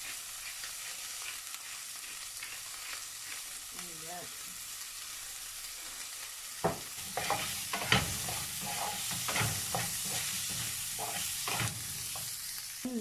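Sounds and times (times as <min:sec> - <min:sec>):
vegetables sizzling in a frying pan: 0:00.0 - 0:13.0
utensil scraping and knocking pan: 0:06.6 - 0:12.3.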